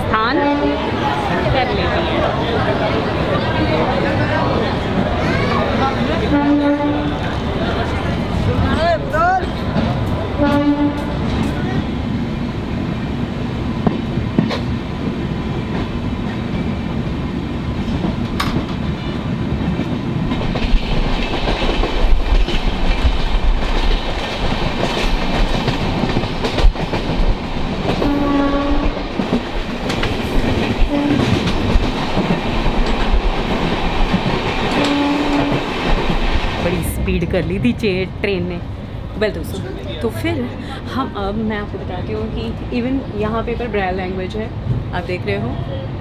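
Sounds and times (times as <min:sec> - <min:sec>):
train rumble and clatter on rails: 0:00.0 - 0:46.0
train horn: 0:06.3 - 0:07.2, 0:10.4 - 0:11.2, 0:28.0 - 0:29.0, 0:30.8 - 0:31.4, 0:34.7 - 0:35.6.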